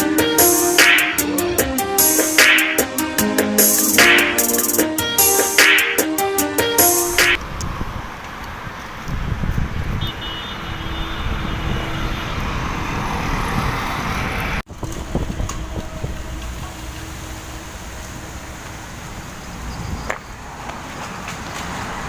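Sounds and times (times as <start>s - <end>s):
low road rumble: 6.7s - 22.0s
tyre hiss on wet road: 16.4s - 22.0s.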